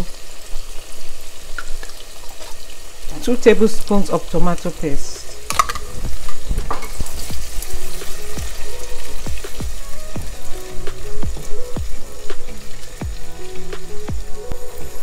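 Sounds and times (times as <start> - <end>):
vegetables sizzling in hot oil: 0.0 - 15.0
background music with held notes: 3.1 - 15.0.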